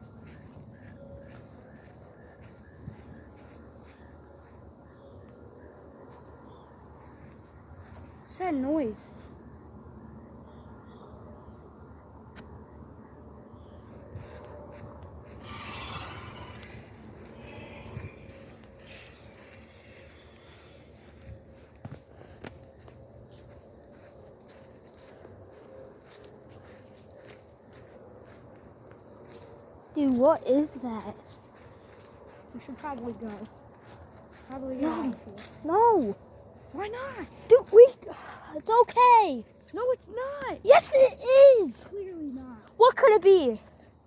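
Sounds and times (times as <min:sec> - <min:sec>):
insects chirring: 0:00.0 - 0:44.0
rustle: 0:14.2 - 0:32.5.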